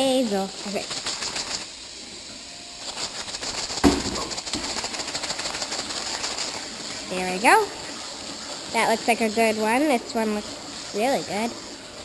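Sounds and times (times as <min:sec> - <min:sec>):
plastic bag crinkling: 0:02.8 - 0:06.7
sharp knock: 0:03.8 - 0:04.7.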